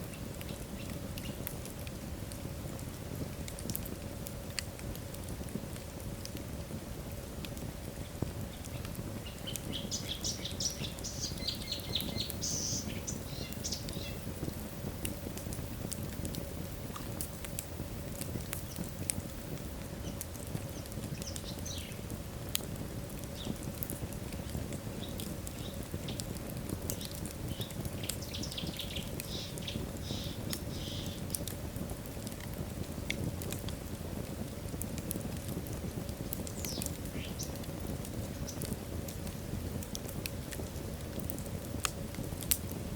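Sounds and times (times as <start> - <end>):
fire crackling and popping: 0.0 - 42.9
low rustle of flame: 0.0 - 42.9
logs whistling: 9.9 - 14.2.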